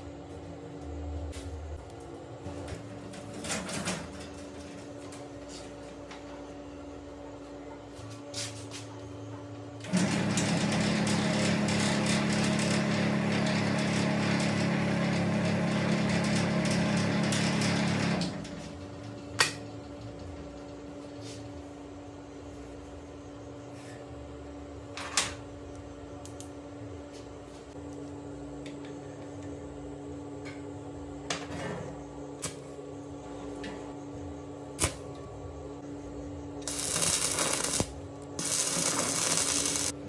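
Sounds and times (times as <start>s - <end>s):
electric motor buzzing rattle: 36.6s - 40.0s.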